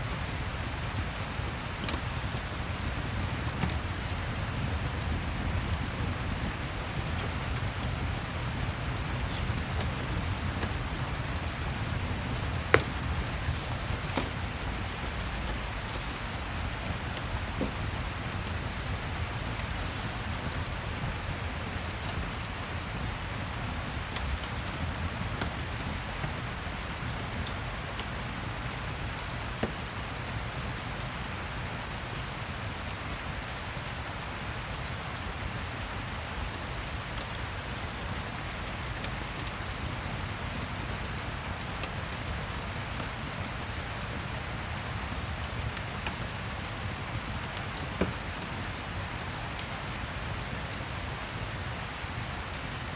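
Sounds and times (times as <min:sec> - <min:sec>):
fireplace crackling: 0:00.0 - 0:22.2
steady rain falling: 0:00.0 - 0:52.9.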